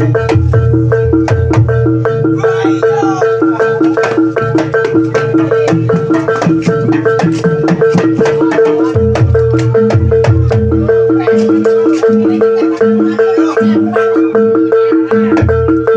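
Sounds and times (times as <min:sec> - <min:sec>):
drums: 0:00.0 - 0:15.9
mallet-struck keyed instruments: 0:00.0 - 0:15.9.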